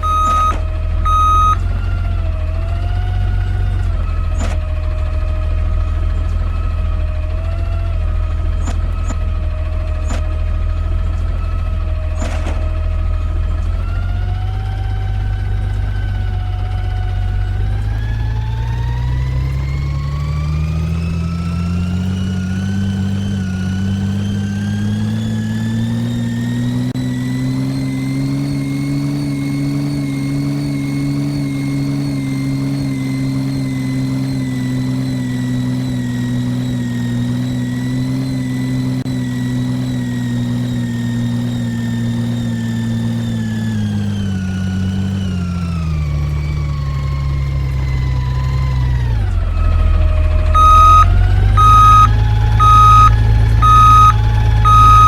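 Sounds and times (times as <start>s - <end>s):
garbage truck diesel engine revving: 0.0s - 55.0s.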